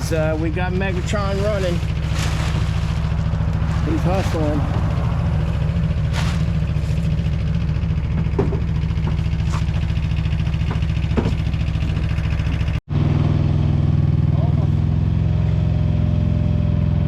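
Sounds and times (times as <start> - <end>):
engine running: 0.0 - 17.0
sharp knocks: 8.1 - 9.9, 10.6 - 12.1.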